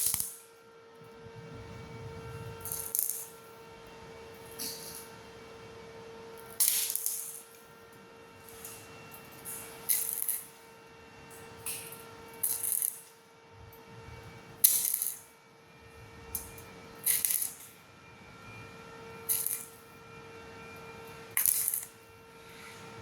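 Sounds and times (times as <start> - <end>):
welding arc crackling: 0.0 - 0.4, 1.5 - 3.5, 6.6 - 7.6, 9.9 - 10.6, 12.4 - 13.1, 14.6 - 15.2, 16.4 - 17.7, 19.3 - 19.8, 21.4 - 22.0
faint steady hum: 0.0 - 23.0.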